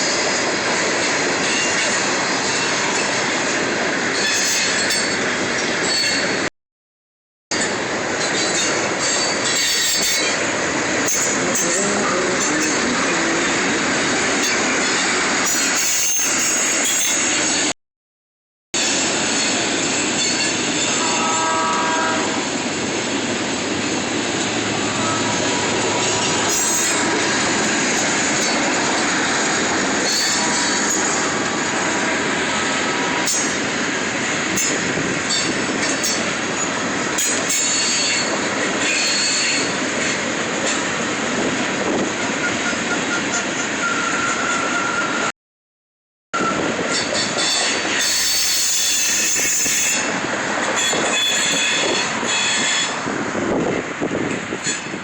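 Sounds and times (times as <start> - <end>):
train wheels rattling on rails: 0.0 - 6.5, 7.5 - 17.7, 18.8 - 45.3, 46.4 - 55.0
thin high squeal: 4.2 - 5.2, 5.8 - 6.4, 8.2 - 10.4, 26.5 - 27.0, 30.0 - 31.1, 46.4 - 50.1.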